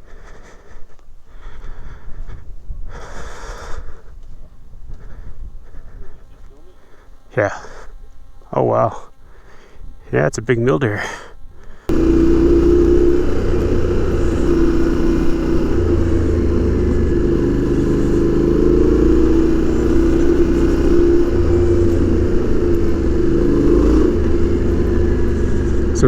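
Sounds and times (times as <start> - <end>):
motorcycle engine running: 11.9 - 26.0.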